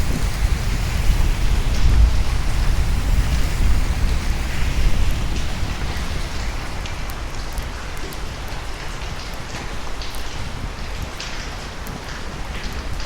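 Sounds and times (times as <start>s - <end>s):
low thunder rumble: 0.0s - 8.8s
heavy rain: 0.0s - 13.0s.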